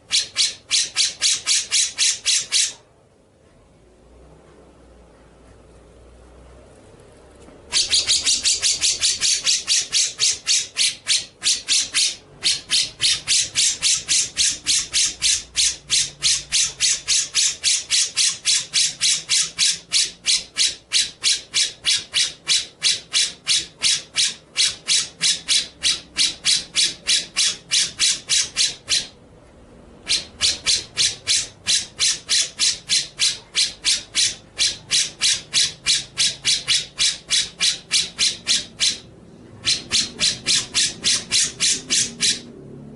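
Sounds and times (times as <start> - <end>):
songbird harsh scratchy call: 7.7 - 29.2, 30.1 - 42.5.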